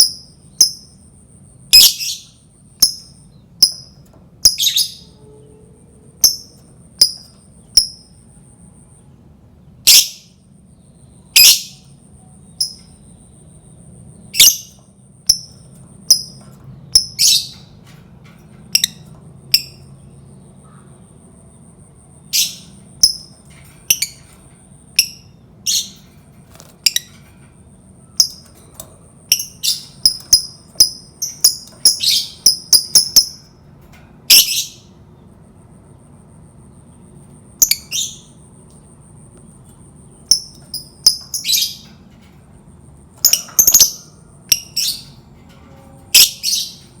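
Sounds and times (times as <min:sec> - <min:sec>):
lovebird shrill calls: 0:14.4 - 0:14.7, 0:29.3 - 0:33.4.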